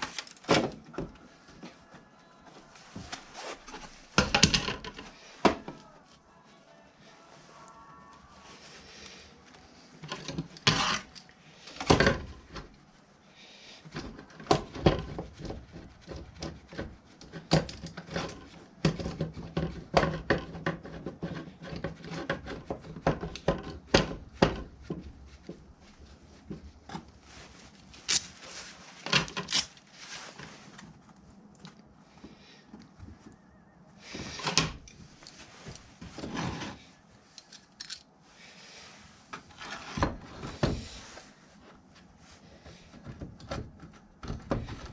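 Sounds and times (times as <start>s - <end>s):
hard objects knocking and scraping: 2.9s - 5.8s, 10.0s - 12.7s, 13.9s - 27.5s, 34.0s - 36.8s.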